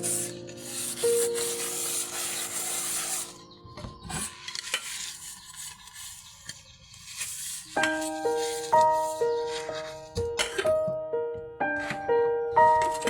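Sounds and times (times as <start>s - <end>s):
scrubbing on bamboo floor: 0.0s - 3.4s, 4.1s - 10.1s.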